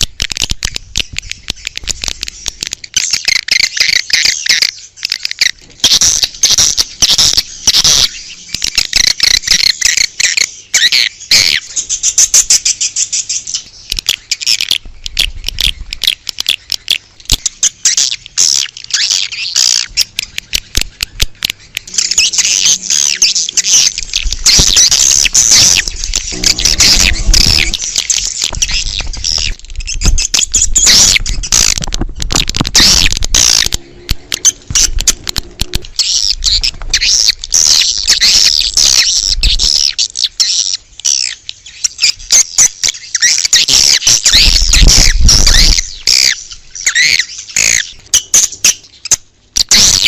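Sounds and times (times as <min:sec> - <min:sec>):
swiftlets twittering: 0:21.9 - 0:31.8.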